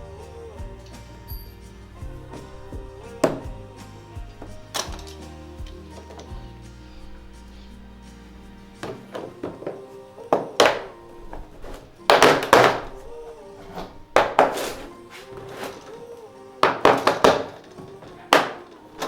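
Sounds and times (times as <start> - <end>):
soft background music: 0.0 - 19.0
heavy knocks from renovation: 16.6 - 18.7.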